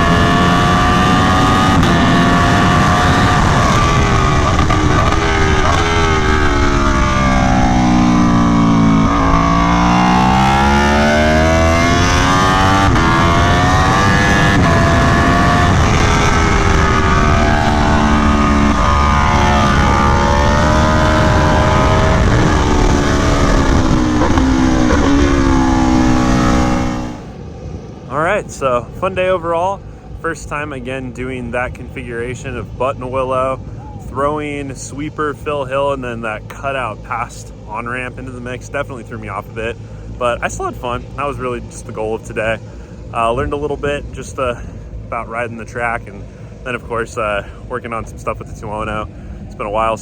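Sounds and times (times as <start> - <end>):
motorcycle engine revving: 0.0 - 27.4.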